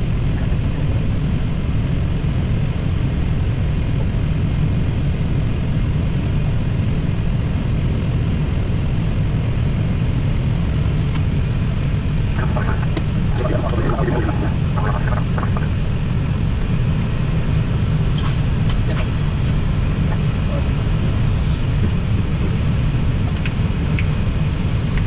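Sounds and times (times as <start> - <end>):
jet engines idling: 10.7 - 25.0.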